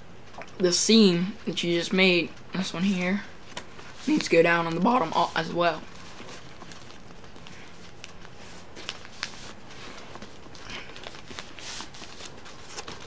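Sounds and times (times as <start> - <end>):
paper rustling and creasing: 3.4 - 13.0.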